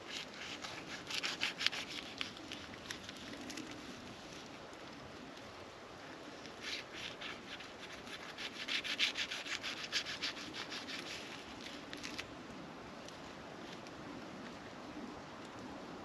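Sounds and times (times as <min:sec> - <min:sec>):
rubbing scraping strokes: 0:00.0 - 0:03.7, 0:06.6 - 0:12.2.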